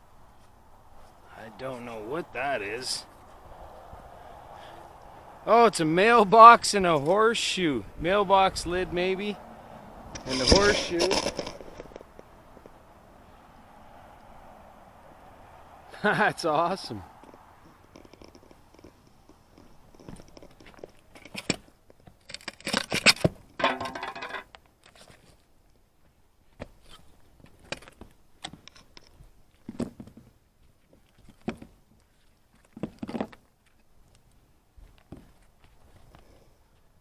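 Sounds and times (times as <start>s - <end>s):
metal scrap knocking and clicking: 10.2s - 12.0s, 22.4s - 24.5s
metal clattering: 23.6s - 24.5s.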